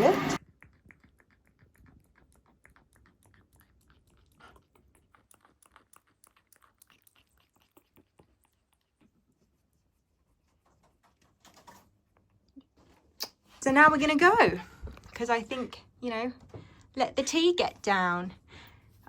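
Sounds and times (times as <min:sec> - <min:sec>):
parrot chewing with beak: 0:00.2 - 0:09.7.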